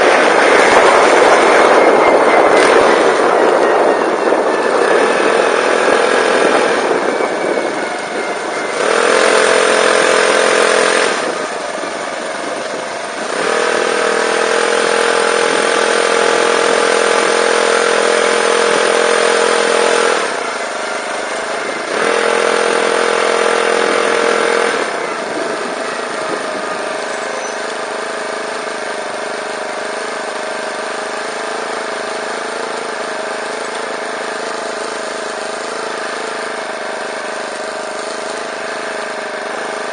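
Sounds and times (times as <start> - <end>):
small engine revving and idling: 0.0 - 39.9.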